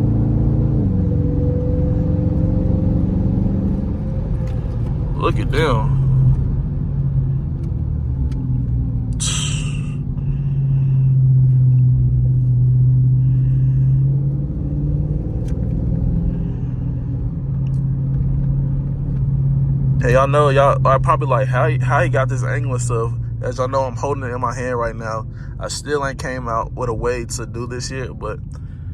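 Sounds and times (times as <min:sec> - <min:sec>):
car engine drone: 0:00.0 - 0:28.9.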